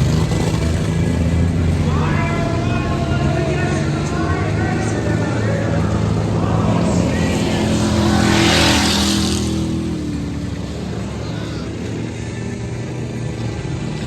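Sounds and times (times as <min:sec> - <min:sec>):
truck engine running hard: 0:00.0 - 0:14.0.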